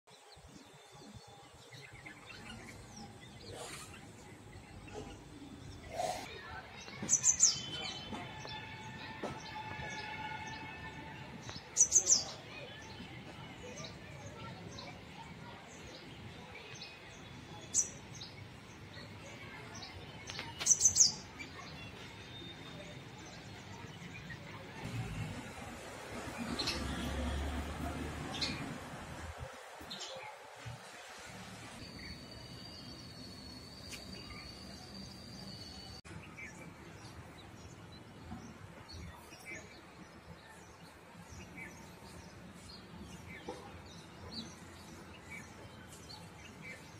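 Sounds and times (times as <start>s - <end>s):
birds chirping: 0.1s - 25.6s
faint background chirping: 31.8s - 46.9s.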